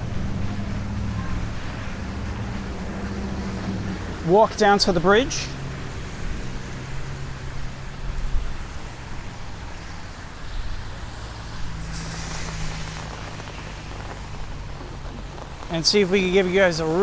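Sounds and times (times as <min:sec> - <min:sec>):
vehicle engines running: 0:00.0 - 0:17.0
brief hiss: 0:11.8 - 0:14.4.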